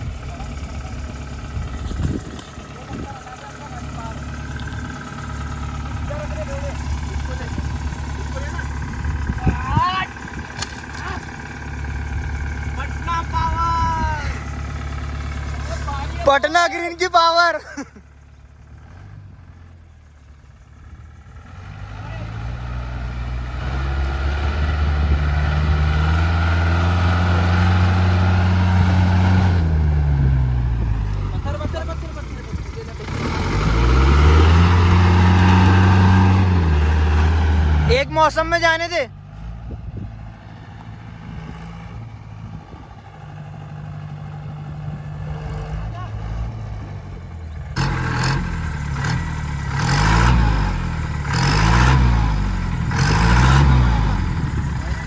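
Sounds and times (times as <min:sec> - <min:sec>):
off-road vehicle engine revving: 0:00.0 - 0:55.0
vehicle engine revving hard: 0:21.5 - 0:32.0, 0:32.8 - 0:39.6, 0:47.7 - 0:55.0.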